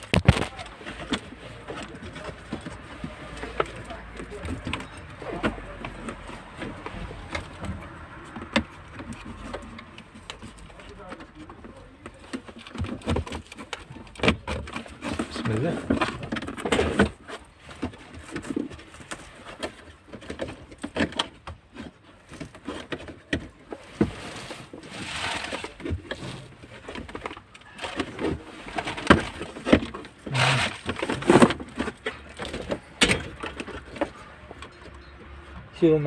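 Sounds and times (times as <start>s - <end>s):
short scraping sounds: 30.3s - 31.4s.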